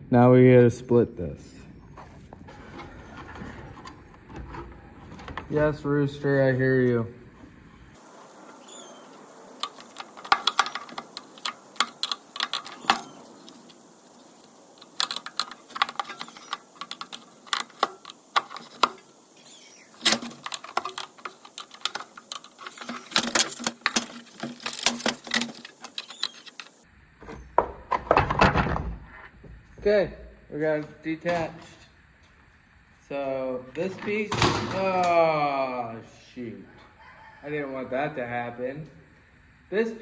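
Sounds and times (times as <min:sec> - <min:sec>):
plastic housing clicking and knocking: 0:09.5 - 0:19.1, 0:20.0 - 0:28.8.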